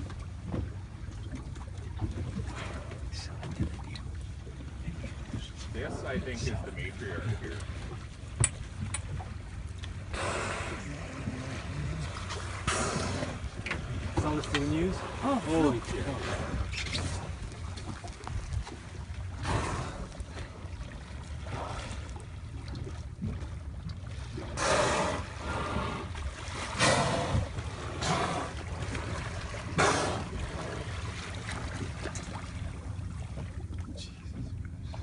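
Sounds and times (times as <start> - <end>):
steady low hum: 0.0 - 35.0
water sloshing around boat: 0.0 - 35.0.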